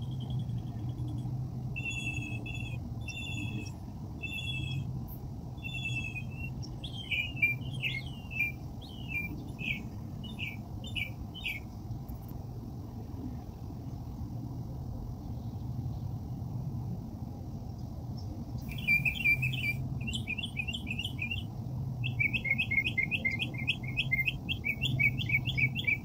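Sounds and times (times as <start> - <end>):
songbird calling: 0.0 - 4.9, 5.6 - 11.7, 18.6 - 26.0
steady low rumble: 0.0 - 22.2.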